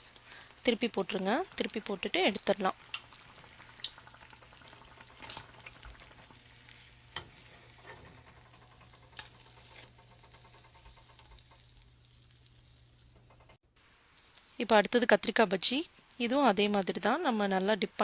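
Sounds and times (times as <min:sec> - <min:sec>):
food sizzling in hot oil: 0:00.0 - 0:13.6.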